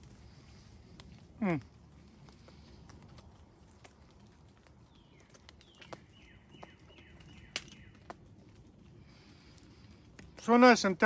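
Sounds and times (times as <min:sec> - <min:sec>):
bird calling with falling notes: 0:04.9 - 0:08.1.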